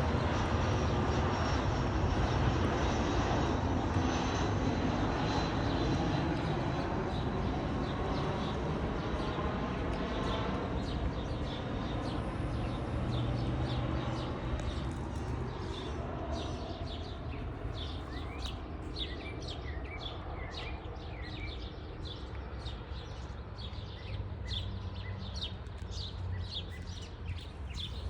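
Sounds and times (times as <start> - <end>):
small birds chirping: 5.2 - 28.0.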